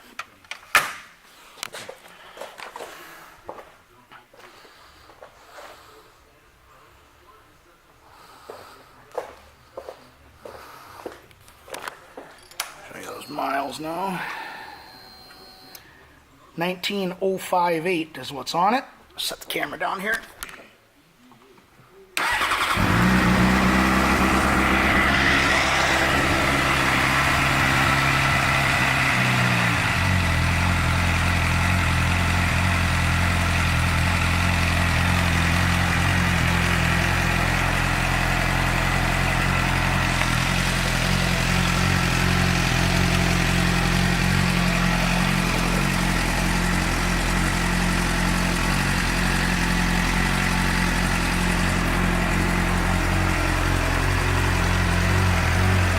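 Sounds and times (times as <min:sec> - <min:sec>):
motorcycle engine idling: 0:22.2 - 0:55.9.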